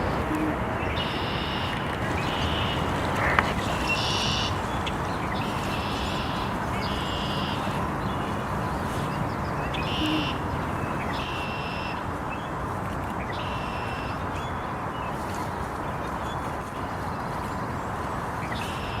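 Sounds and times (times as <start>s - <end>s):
bird buzzy call: 0.0s - 12.0s
steady rushing background: 0.0s - 13.2s.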